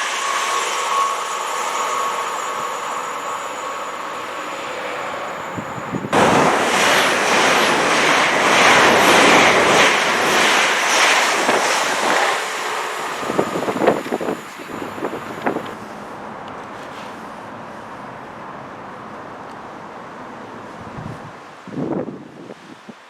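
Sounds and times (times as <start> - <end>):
train passing at speed: 0.0 - 22.8
wind buffeting microphone: 5.4 - 15.8, 20.7 - 23.0.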